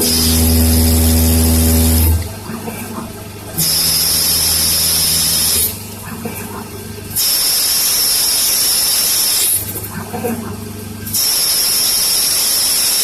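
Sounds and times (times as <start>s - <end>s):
lathe motor whine: 0.0s - 2.3s, 3.6s - 5.8s.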